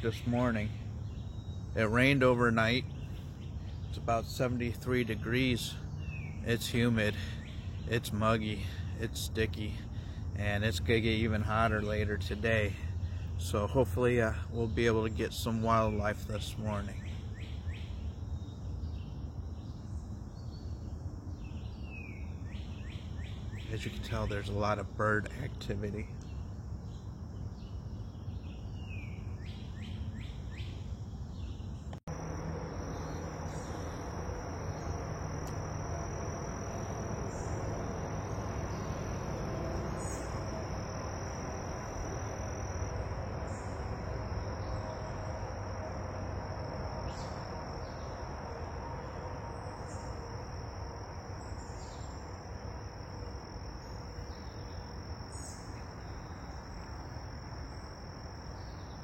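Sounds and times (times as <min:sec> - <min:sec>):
birds chirping: 0:00.0 - 0:48.3
low background noise: 0:00.0 - 0:59.0
high-pitched insect trill: 0:32.1 - 0:59.0.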